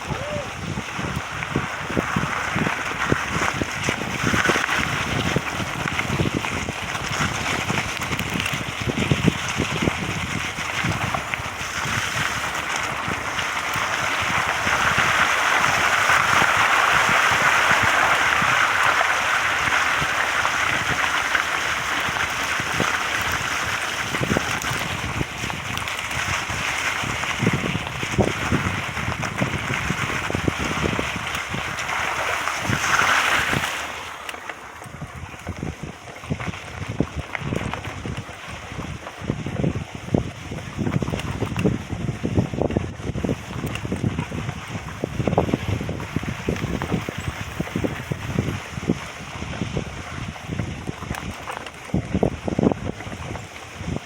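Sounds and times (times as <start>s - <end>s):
wind buffeting microphone: 0.0s - 54.0s
rushing water: 28.2s - 34.8s.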